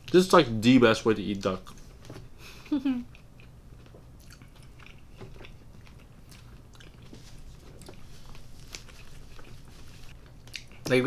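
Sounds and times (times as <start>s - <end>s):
wet chewing mouth clicks: 10.4s - 10.9s.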